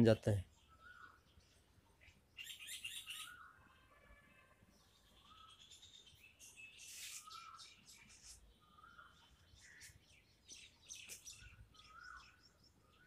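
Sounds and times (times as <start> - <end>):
bird chirping: 0.0 - 13.0
bird twittering: 0.5 - 1.2, 2.0 - 3.7, 5.2 - 13.0.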